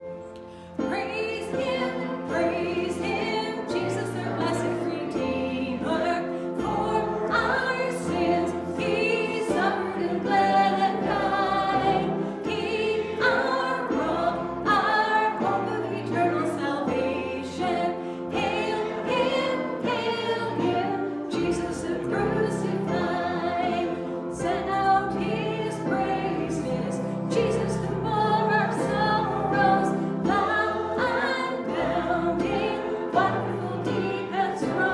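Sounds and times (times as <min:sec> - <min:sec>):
instrumental accompaniment: 0:00.0 - 0:34.9
choir singing: 0:00.2 - 0:34.9.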